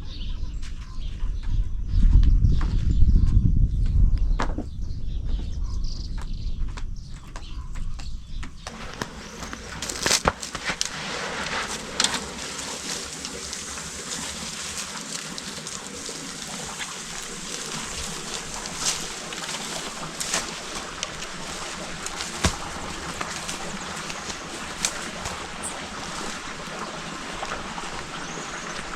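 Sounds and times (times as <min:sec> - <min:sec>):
creek running: 0:08.6 - 0:28.9.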